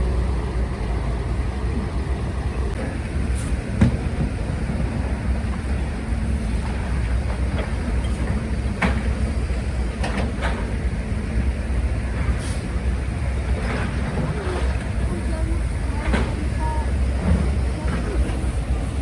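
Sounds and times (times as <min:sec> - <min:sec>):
heavy machinery diesel engine: 0:00.0 - 0:19.0.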